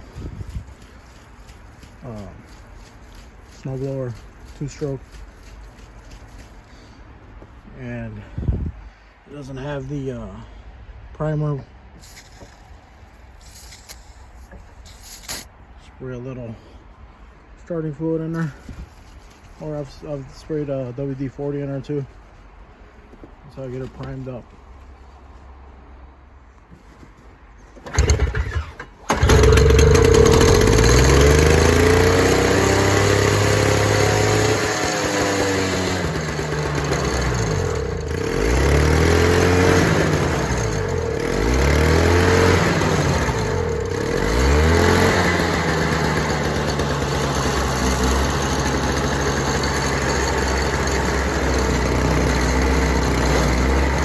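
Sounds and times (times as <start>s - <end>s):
snowblower engine running: 27.8s - 54.0s.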